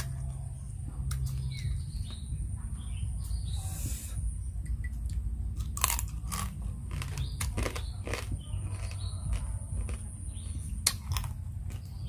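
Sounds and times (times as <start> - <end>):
chewing and crunching crab: 4.9 - 12.0.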